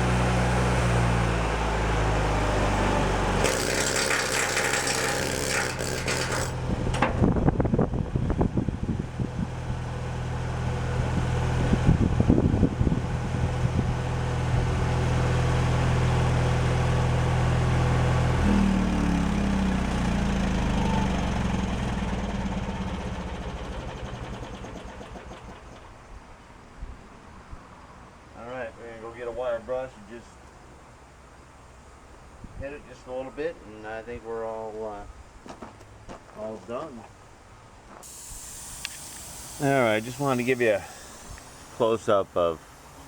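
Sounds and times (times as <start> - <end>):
welder engine running: 0.0 - 7.6, 8.8 - 25.9, 38.0 - 43.0
hiss: 38.0 - 43.0.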